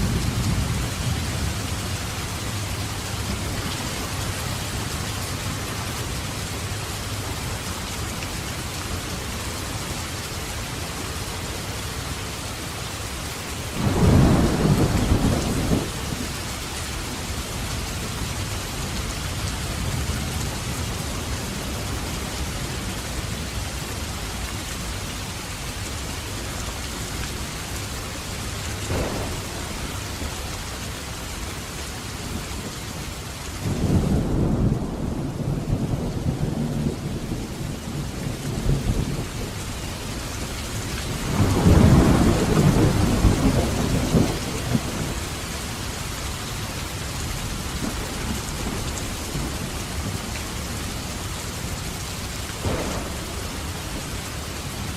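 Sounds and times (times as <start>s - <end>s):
heavy rain: 0.0s - 54.9s
thunder crack and rumble: 13.7s - 16.6s, 28.7s - 30.7s, 33.6s - 45.4s, 47.5s - 51.0s, 52.5s - 54.9s.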